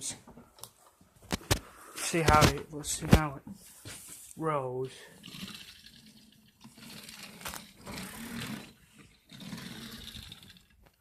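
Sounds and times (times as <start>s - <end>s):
toy car wheels rolling: 5.2s - 11.0s.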